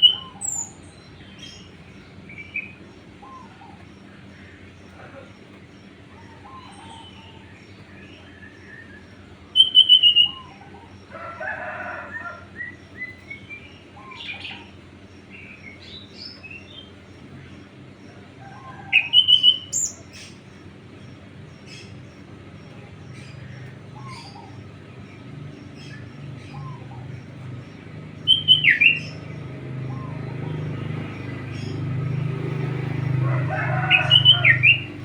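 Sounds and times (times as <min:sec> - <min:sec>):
small birds chirping: 0:00.0 - 0:11.4, 0:12.0 - 0:35.0.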